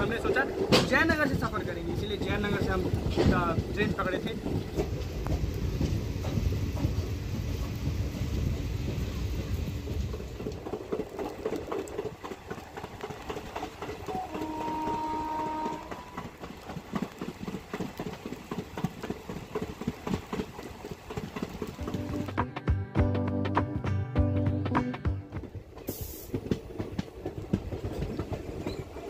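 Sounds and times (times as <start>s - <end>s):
train wheels clicking over rails: 0.0s - 22.4s, 25.3s - 29.0s
train rumble: 0.0s - 22.6s, 24.8s - 29.0s
train horn: 14.1s - 16.3s.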